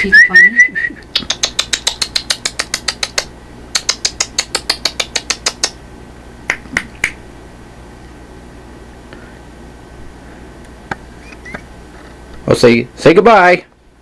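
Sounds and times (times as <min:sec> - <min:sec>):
sharp clicks: 0:01.0 - 0:05.8.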